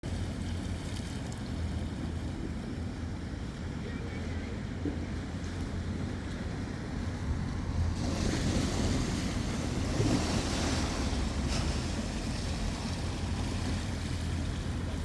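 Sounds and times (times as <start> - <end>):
wind rumbling on microphone: 0.0 - 15.0
water rushing: 2.9 - 15.0.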